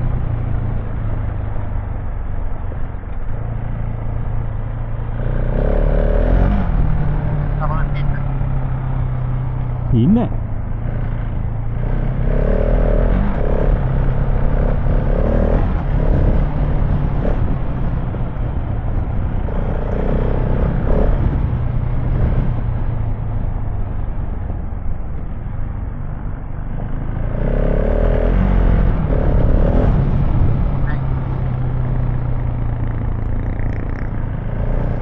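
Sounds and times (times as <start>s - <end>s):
motorcycle engine running: 0.0s - 35.0s
wind and tyre noise: 0.0s - 35.0s.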